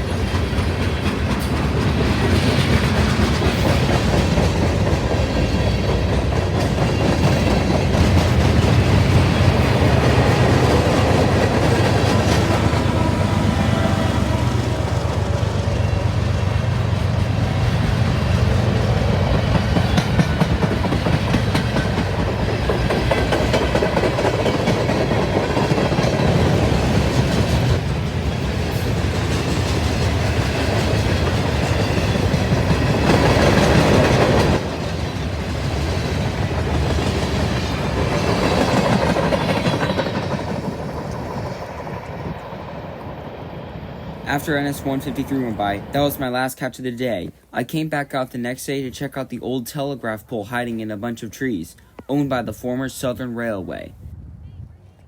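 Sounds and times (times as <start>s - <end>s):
wheels clicking over rails: 0.0s - 42.6s
freight train rumbling: 0.0s - 50.2s.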